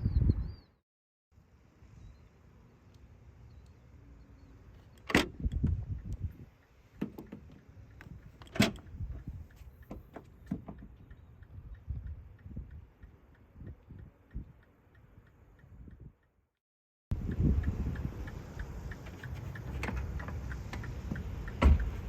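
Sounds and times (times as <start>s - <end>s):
handling clicks and rattles: 7.0s - 11.0s.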